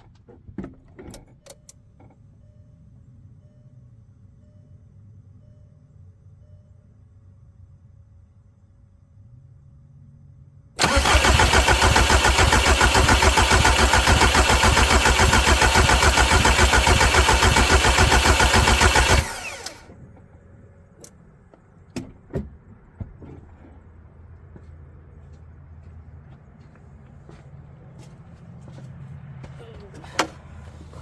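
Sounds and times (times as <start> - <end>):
diesel engine cranking: 10.8 - 20.0.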